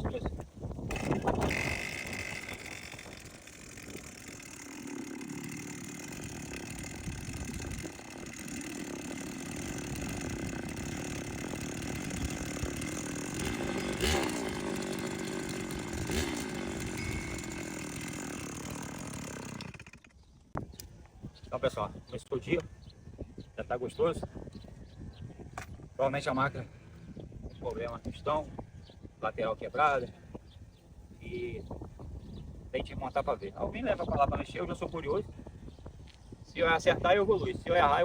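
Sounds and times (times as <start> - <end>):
brushcutter engine rattling: 0.1 - 20.3.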